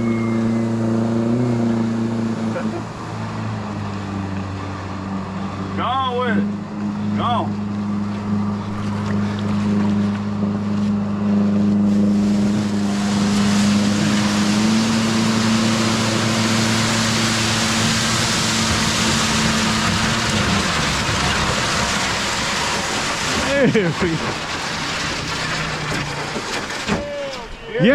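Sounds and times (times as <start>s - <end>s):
motorboat engine hum: 0.0s - 27.9s
rush of water and spray: 11.7s - 27.9s.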